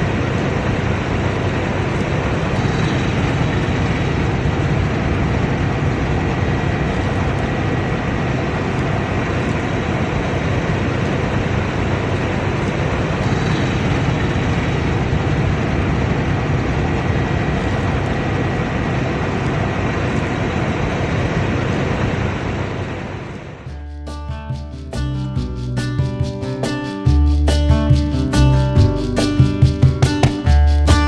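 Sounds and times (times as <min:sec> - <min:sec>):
combine harvester engine drone: 0:00.0 - 0:23.7
thin high whine: 0:00.0 - 0:23.7.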